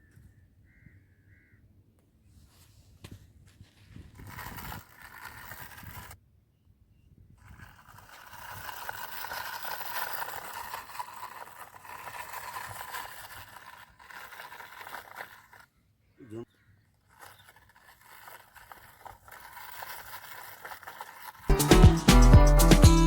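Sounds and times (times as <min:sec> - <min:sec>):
toy tractor scraping in sand: 0:02.6 - 0:06.2, 0:07.4 - 0:15.8, 0:16.6 - 0:23.0.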